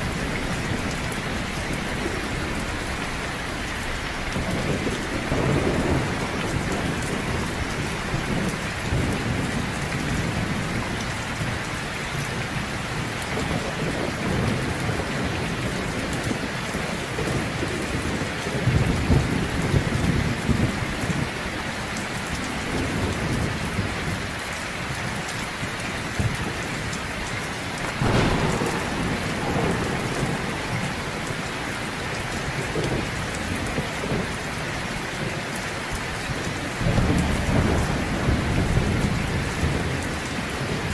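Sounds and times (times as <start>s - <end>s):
sharp thunderclap: 0.0s - 20.8s, 27.8s - 34.6s, 36.4s - 40.9s
thunder rumbling: 0.0s - 21.6s, 22.2s - 40.9s
heavy rain pouring: 0.0s - 40.9s.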